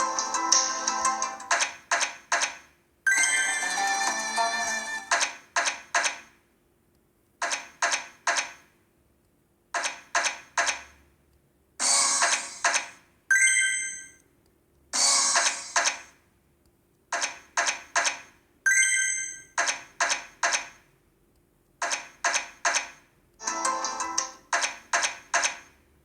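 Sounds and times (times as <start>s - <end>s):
bright ringing chime: 3.1s - 4.7s, 13.3s - 14.2s, 18.7s - 19.5s.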